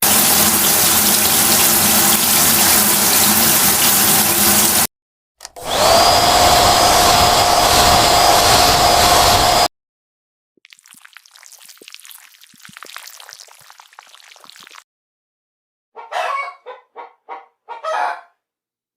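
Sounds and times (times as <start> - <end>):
motor whine: 5.5 - 9.7
whooshing motor noise: 5.6 - 9.7.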